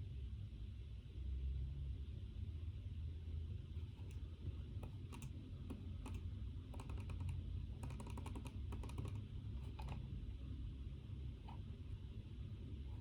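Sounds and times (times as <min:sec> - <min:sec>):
low room hum: 0:00.0 - 0:13.0
keyboard key clicks: 0:06.0 - 0:10.0.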